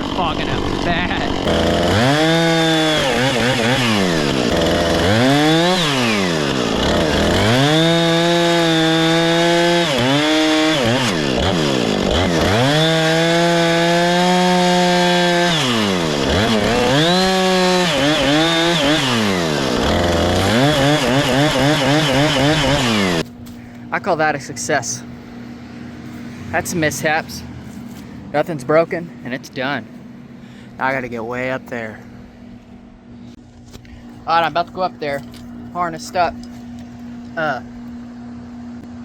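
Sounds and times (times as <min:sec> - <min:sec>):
chainsaw revving: 0:00.0 - 0:23.2.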